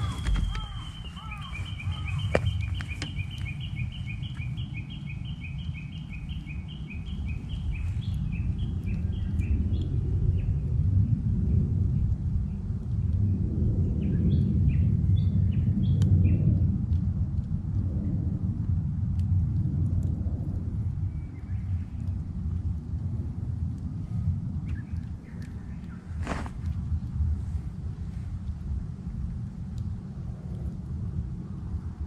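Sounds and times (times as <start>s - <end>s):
bird two-note calls: 0.0s - 4.4s
bird song burst: 0.0s - 10.6s
campfire snaps: 0.0s - 32.0s
steady low rumble: 0.0s - 32.0s.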